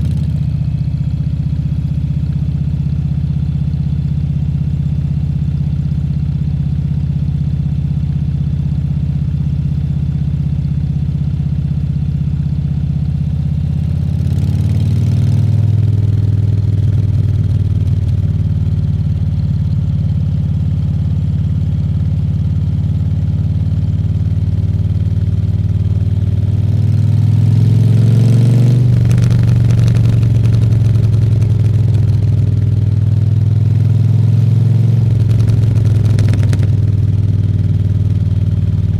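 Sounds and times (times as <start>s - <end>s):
motorcycle engine revving: 25.5s - 38.9s.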